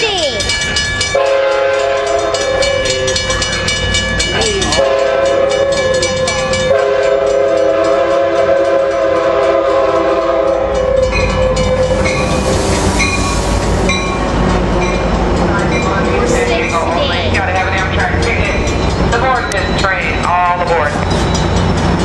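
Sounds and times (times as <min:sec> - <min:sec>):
train wheels clattering on rails: 0:00.0 - 0:22.0
locomotive air horn blasts: 0:01.2 - 0:03.2, 0:04.6 - 0:06.0, 0:06.7 - 0:12.0.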